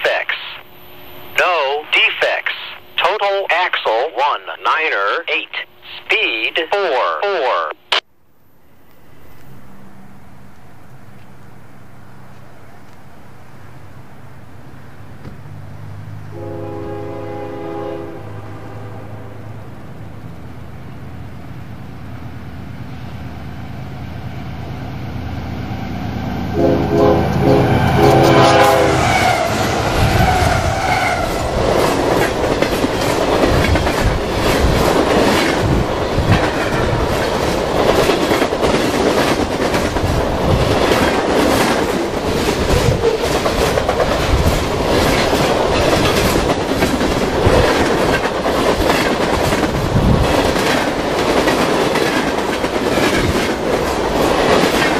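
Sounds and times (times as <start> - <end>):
train wheel rumble: 8.9 - 54.9
locomotive horn blasts: 16.3 - 19.6, 26.5 - 29.5
wheels clacking over rail joints: 29.5 - 54.9.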